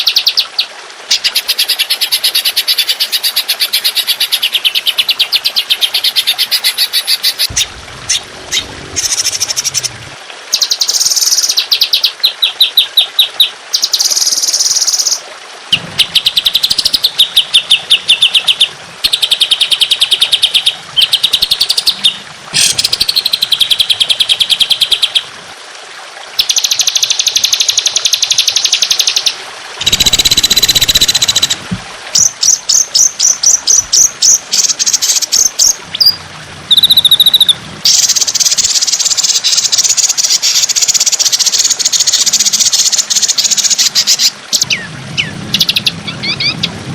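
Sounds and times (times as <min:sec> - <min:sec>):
songbird rapid high notes: 0:29.8 - 0:31.6.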